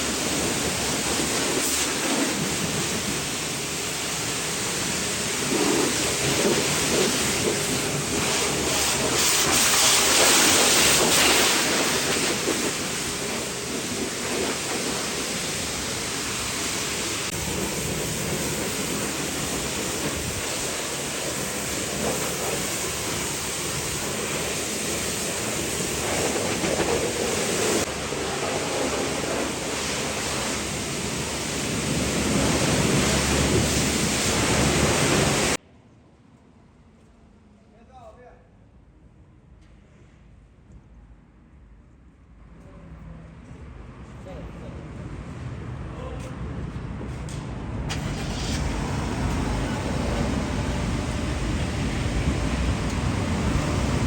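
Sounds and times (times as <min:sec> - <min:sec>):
pressure washer spray hissing: 0:00.0 - 0:35.6, 0:47.9 - 0:54.0.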